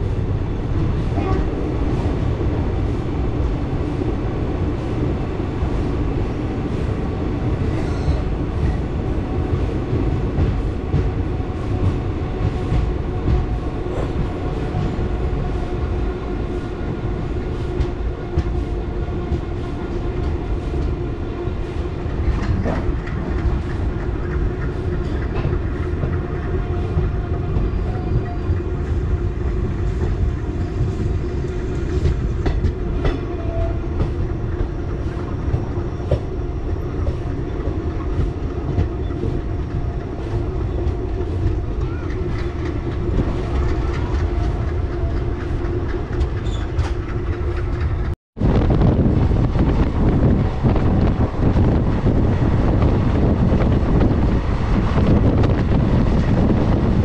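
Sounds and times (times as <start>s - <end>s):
train rumbling: 0.0s - 57.0s
wheels clicking over rail joints: 40.8s - 48.2s.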